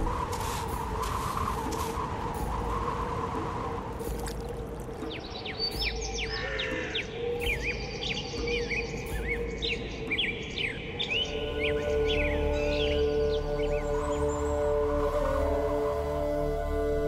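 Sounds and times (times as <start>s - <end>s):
low musical drone: 0.0s - 17.0s
birds chirping: 4.0s - 15.1s.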